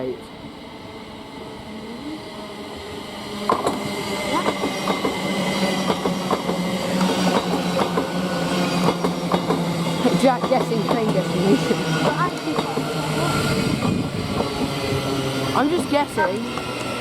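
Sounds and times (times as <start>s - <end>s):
electric train hum: 0.0s - 17.0s
train wheels clicking over rails: 3.4s - 17.0s.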